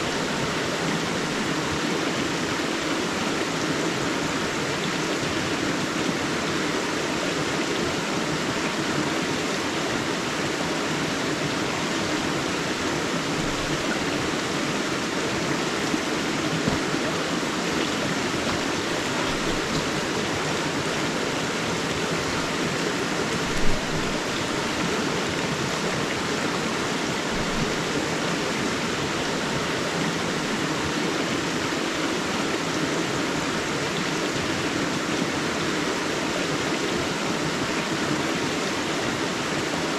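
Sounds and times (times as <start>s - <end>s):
water rushing over rocks: 0.0s - 39.9s
water splash: 13.3s - 14.8s, 15.9s - 22.6s, 23.3s - 25.0s, 27.2s - 28.0s.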